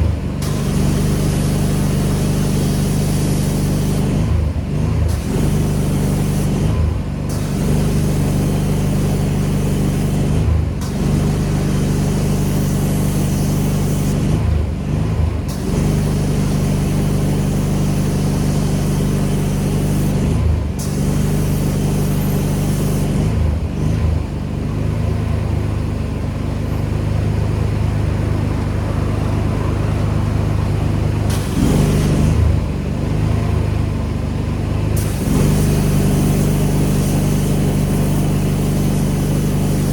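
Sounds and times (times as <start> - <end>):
pressure washer engine hum: 0.0 - 39.9
high-pressure water spray hiss: 0.4 - 4.3, 5.1 - 14.4, 15.5 - 23.3, 31.3 - 32.4, 35.0 - 39.9.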